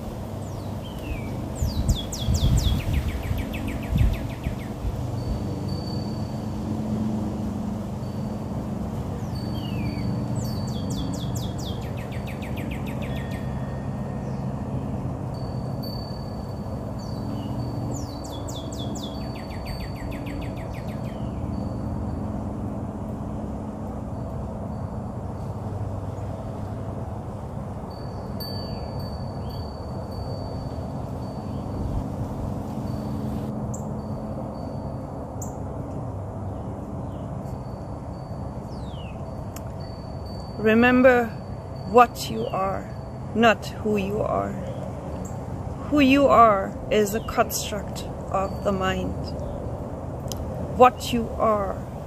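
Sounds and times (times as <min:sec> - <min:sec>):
birds singing: 0:00.0 - 0:06.0, 0:09.0 - 0:21.8, 0:38.6 - 0:39.9, 0:41.1 - 0:49.8.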